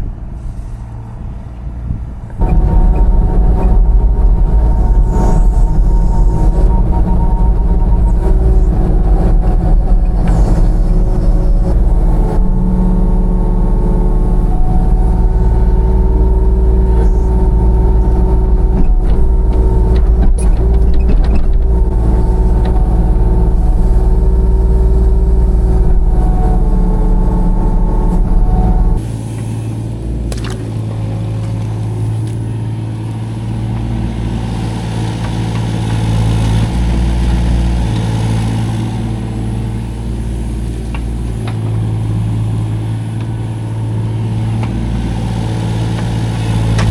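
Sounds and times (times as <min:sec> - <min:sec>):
excavator engine under load: 0:00.0 - 0:46.9.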